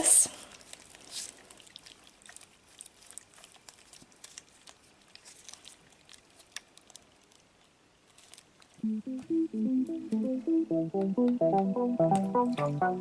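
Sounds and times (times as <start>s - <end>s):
small irregular clicks and ticks: 0.3s - 8.8s.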